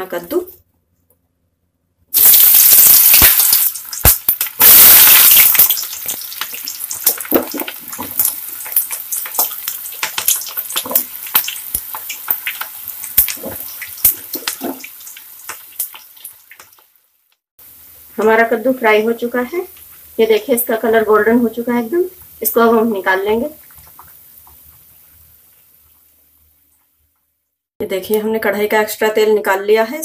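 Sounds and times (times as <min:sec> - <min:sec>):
food sizzling in hot oil: 0:02.1 - 0:26.1.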